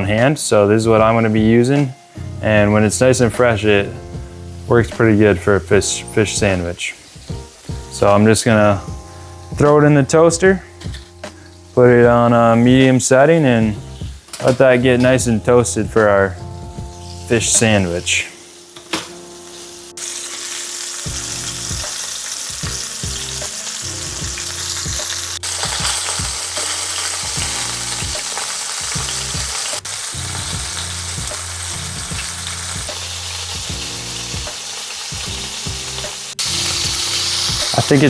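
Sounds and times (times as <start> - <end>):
fish deep-frying in hot oil: 5.8 - 8.0, 18.4 - 38.0.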